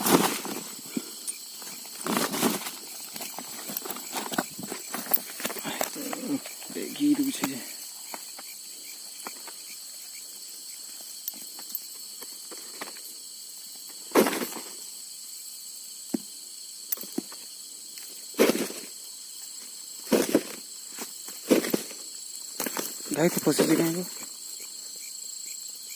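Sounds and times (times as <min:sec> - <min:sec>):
crickets trilling: 0:00.0 - 0:25.9.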